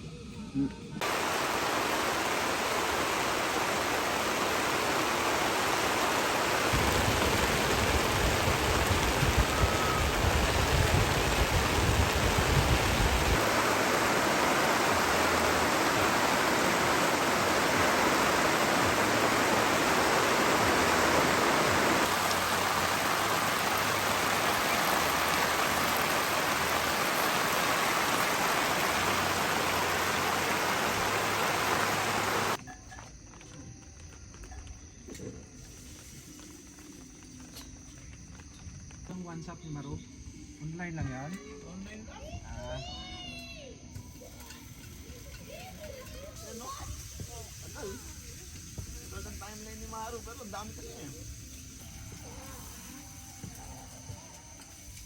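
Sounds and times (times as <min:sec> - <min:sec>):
water rushing: 0:01.0 - 0:32.6.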